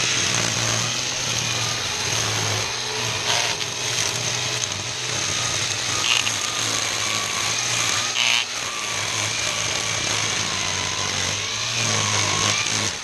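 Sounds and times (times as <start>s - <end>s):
string trimmer cutting grass: 0.0s - 13.0s.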